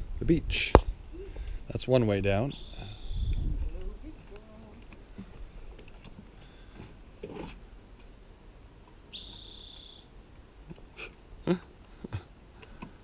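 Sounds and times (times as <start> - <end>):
high bird call: 2.5 - 3.4, 9.1 - 10.1.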